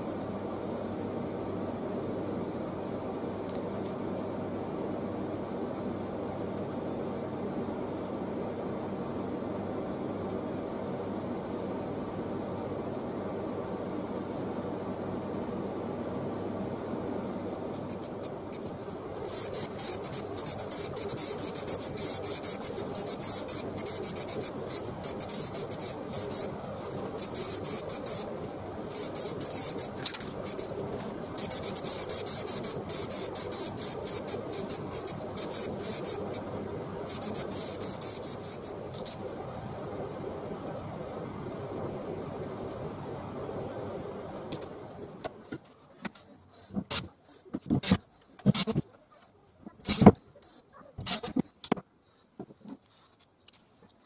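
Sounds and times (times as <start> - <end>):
low background noise: 0.0 - 54.0
spray paint hissing: 17.5 - 28.3, 28.9 - 38.8.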